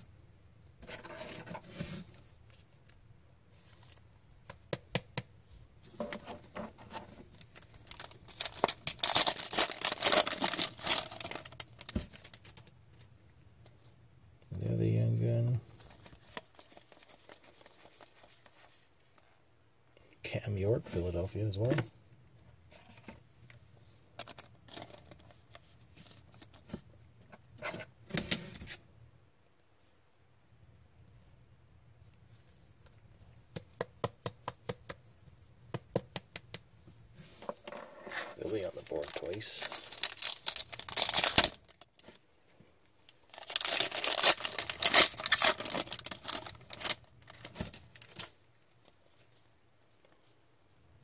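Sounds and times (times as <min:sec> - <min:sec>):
foil wrapper tearing and crinkling: 0:07.4 - 0:12.6, 0:38.4 - 0:42.1, 0:43.3 - 0:48.3.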